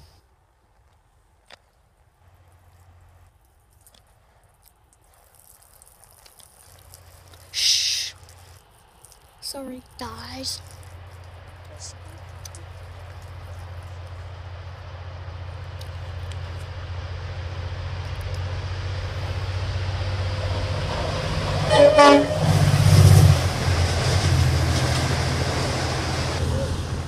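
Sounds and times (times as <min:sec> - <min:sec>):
diesel train engine hum: 0:06.8 - 0:27.0
train rushing past: 0:16.7 - 0:27.0
train horn blast: 0:20.5 - 0:23.3.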